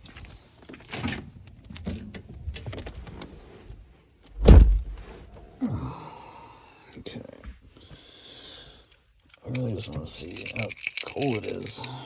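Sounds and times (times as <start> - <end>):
truck door shutting: 4.3 - 5.1.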